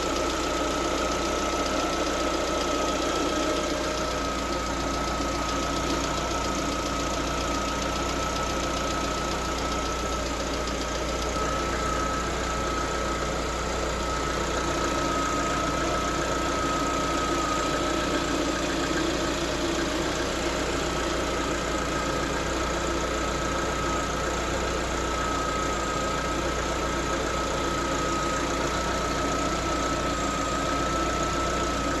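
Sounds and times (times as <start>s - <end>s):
car engine idling: 0.0s - 32.0s
steady high whine: 6.1s - 22.1s.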